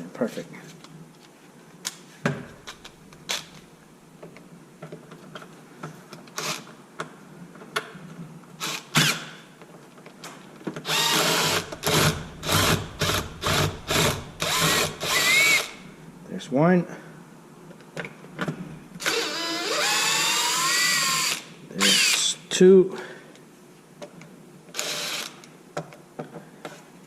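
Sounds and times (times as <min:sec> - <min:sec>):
power driver pulsing: 0:10.9 - 0:15.9.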